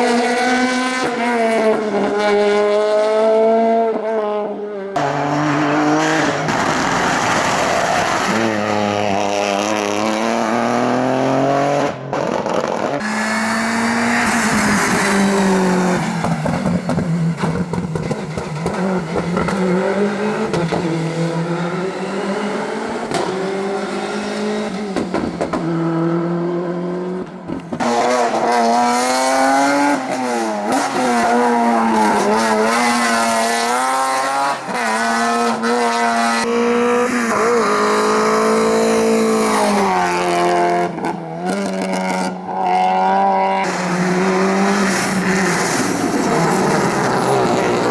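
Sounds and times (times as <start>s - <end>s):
rally car engines revving: 0.0s - 47.9s.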